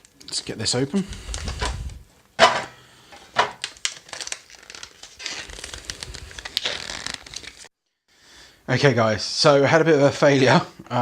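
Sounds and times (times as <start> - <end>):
packaging crinkling and rustling: 0.0 - 2.6, 3.2 - 7.7
foil pouch tearing open: 3.6 - 7.7.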